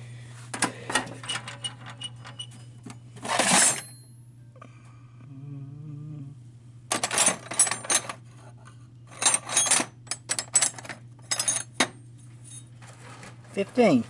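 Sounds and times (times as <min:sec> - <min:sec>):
metal wrenches clattering: 0:03.2 - 0:04.0, 0:06.9 - 0:08.2, 0:09.1 - 0:13.8.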